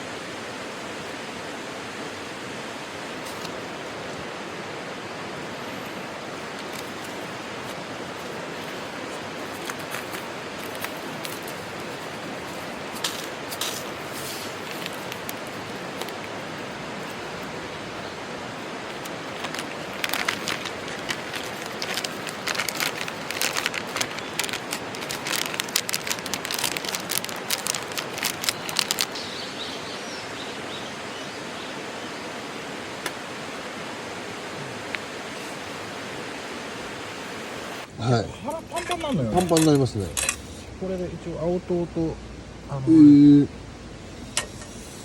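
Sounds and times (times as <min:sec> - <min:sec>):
outdoor background hiss: 0:00.0 - 0:45.0
quick crackling clicks: 0:09.4 - 0:16.4, 0:18.9 - 0:29.2.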